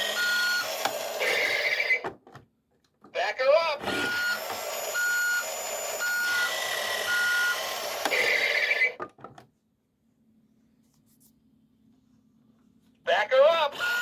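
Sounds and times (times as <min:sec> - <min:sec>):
toy reversing alarm beeps: 0:00.0 - 0:02.0, 0:03.9 - 0:09.0, 0:13.8 - 0:14.0.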